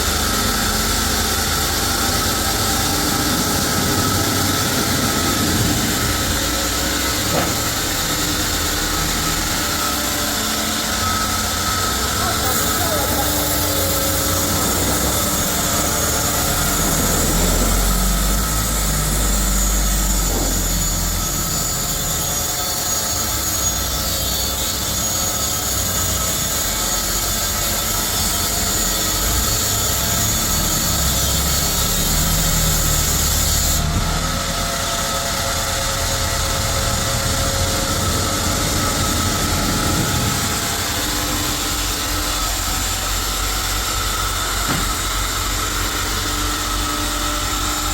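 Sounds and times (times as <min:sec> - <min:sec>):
power saw cutting timber: 0:00.0 - 0:47.9.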